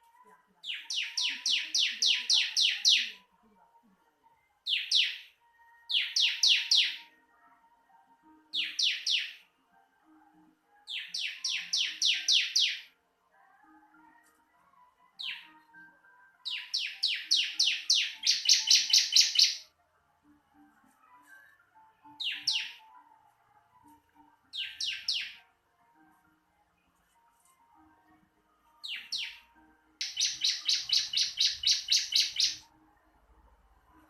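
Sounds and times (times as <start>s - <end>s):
bird chirping in descending runs: 16.5s - 19.6s, 28.9s - 29.4s, 30.0s - 32.6s.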